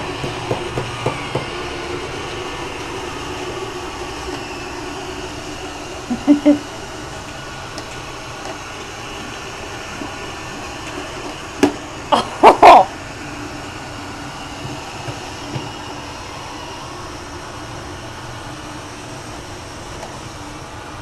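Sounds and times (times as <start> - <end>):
robot vacuum whirring: 0.0 - 21.0
person exclaiming: 12.2 - 12.9.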